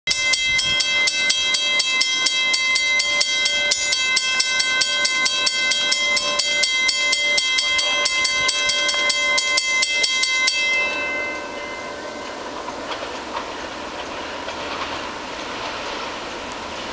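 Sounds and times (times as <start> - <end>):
level crossing bell ringing: 0.1 - 12.6.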